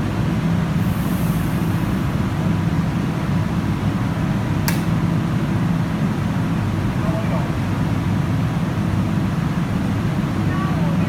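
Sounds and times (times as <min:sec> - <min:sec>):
metro train rumble: 0:00.0 - 0:11.0
sharp click: 0:04.7 - 0:04.9.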